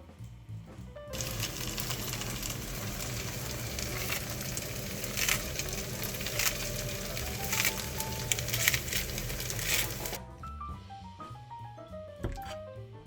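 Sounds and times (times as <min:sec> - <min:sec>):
food sizzling in hot oil: 0:01.2 - 0:10.2
oil crackling and popping: 0:01.2 - 0:10.2.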